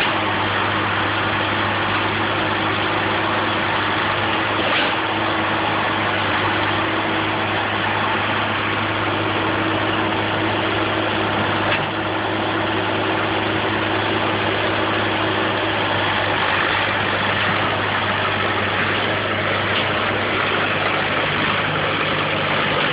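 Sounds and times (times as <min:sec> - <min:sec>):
crawler tractor engine running: 0:00.0 - 0:22.9
dense mechanical clatter: 0:00.0 - 0:22.9.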